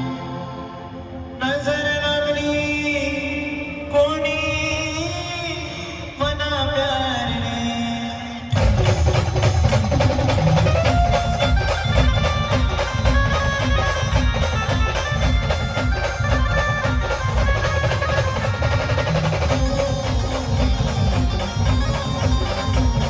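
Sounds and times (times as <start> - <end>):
fast drumming: 8.5 - 23.0.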